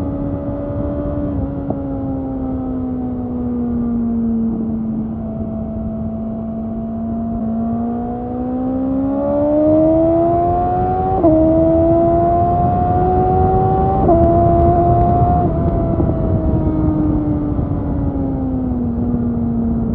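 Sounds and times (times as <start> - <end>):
motorcycle engine revving and shifting: 0.0 - 19.9
wind noise: 0.0 - 19.9.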